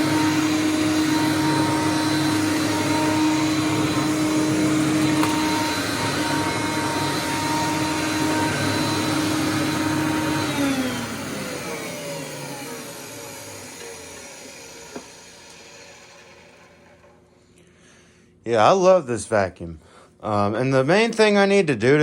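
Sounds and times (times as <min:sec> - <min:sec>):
motor winding down: 0:00.0 - 0:17.2
vacuum cleaner whining: 0:00.0 - 0:17.6.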